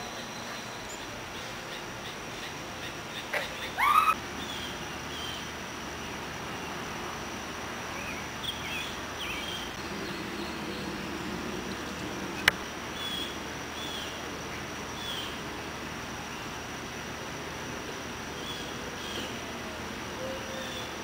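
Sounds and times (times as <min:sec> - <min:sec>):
birds chirping: 0:00.0 - 0:16.9, 0:17.9 - 0:21.0
high-pitched hum: 0:03.8 - 0:20.6.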